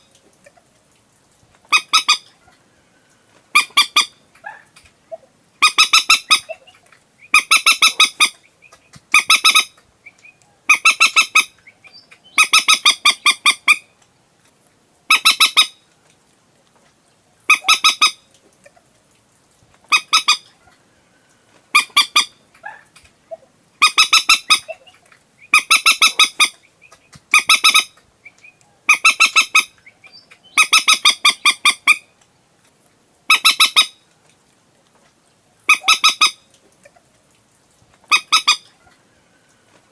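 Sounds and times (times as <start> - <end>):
moorhen harsh clucking: 1.6 - 2.6, 3.5 - 13.9, 15.1 - 15.8, 17.5 - 18.9, 19.8 - 20.8, 21.7 - 32.1, 33.3 - 34.0, 35.7 - 37.1, 38.0 - 39.0.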